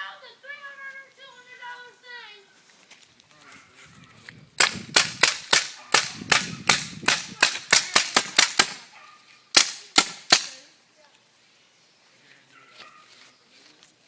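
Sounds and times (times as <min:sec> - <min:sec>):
paintball gun shots: 0:04.6 - 0:09.0, 0:09.6 - 0:10.6.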